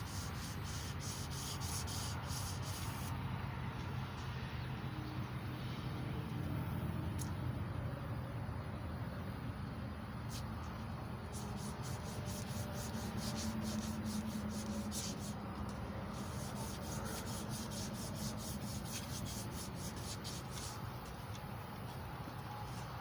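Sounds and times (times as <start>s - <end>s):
emery cloth rubbing metal: 16.1s - 21.2s.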